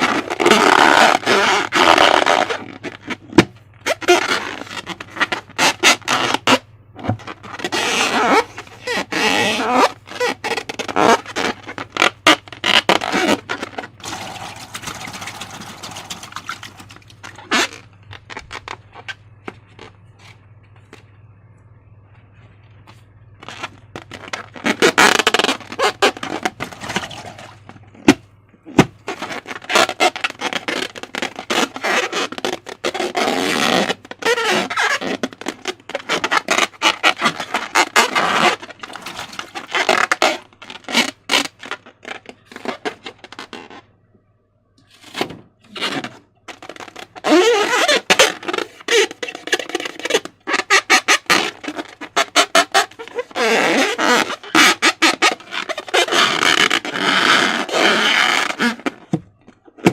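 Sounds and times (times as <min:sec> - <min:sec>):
slime squelching: 0:07.1 - 0:19.2, 0:23.4 - 0:27.7.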